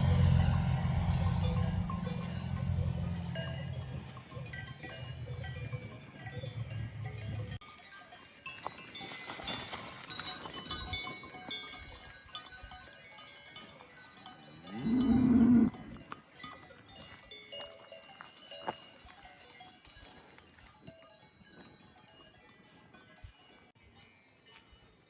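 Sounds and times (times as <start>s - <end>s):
cowbells clanking: 0.0s - 25.0s
cow calling: 14.7s - 16.0s.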